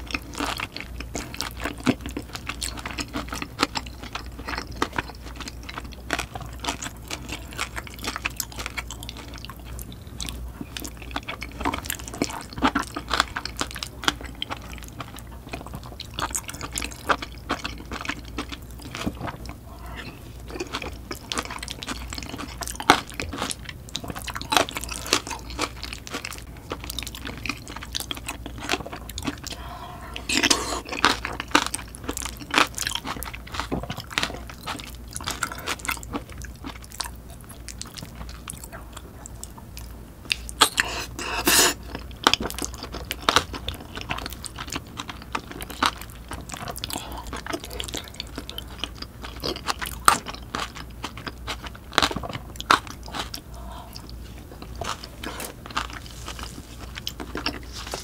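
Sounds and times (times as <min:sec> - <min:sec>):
chewing and wet mouth sounds: 0:00.0 - 0:58.0.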